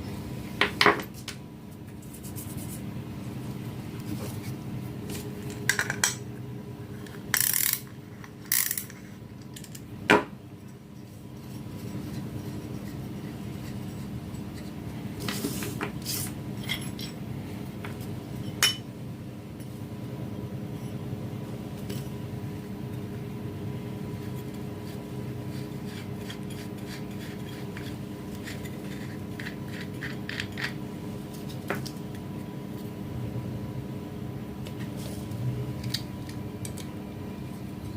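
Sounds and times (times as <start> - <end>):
steady low hum: 0.0 - 37.9
metal parts clinking and scraping: 7.3 - 9.8.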